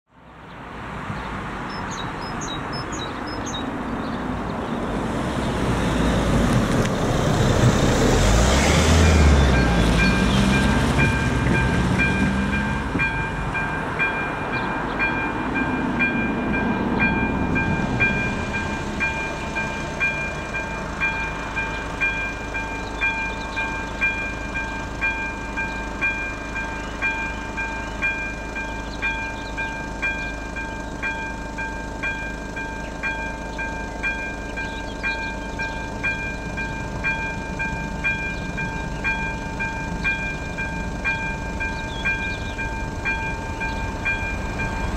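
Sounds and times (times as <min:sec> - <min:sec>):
level-crossing warning bell ringing: 0:09.0 - 0:44.9.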